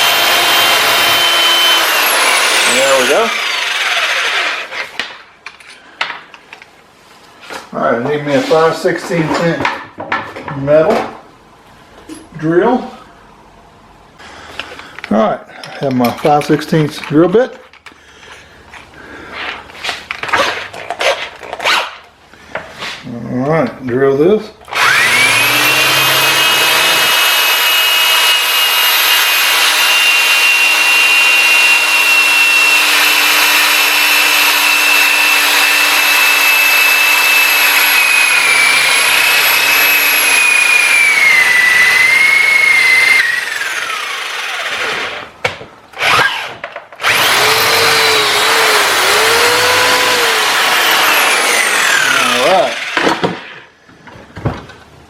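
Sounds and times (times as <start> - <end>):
electric drill boring through steel: 0.0 - 4.8, 24.7 - 45.2, 46.0 - 53.5.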